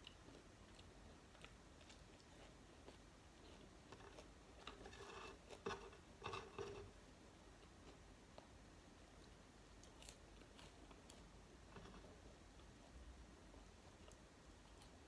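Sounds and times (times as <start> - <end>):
close-up chewing and clicks: 0.0 - 6.8, 9.2 - 12.7, 13.8 - 15.0.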